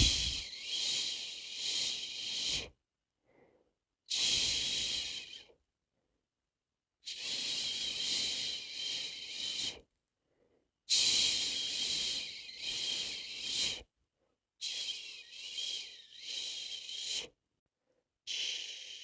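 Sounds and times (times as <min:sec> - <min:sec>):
person shushing: 0:00.0 - 0:00.4.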